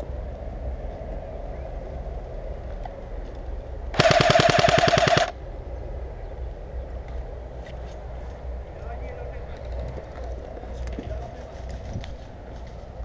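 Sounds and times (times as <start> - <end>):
airsoft rifle full-auto burst: 4.0 - 5.4.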